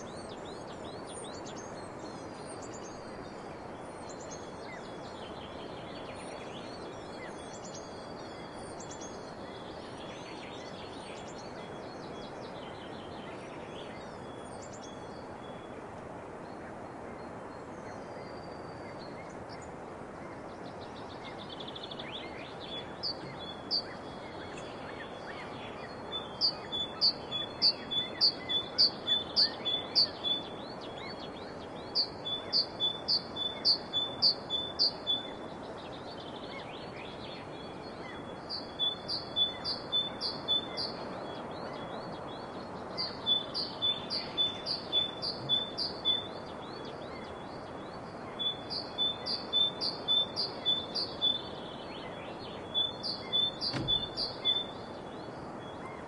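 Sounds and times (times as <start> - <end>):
background hiss: 0.0 - 56.0
songbird singing high notes: 22.2 - 31.2, 43.0 - 47.3, 48.4 - 54.9.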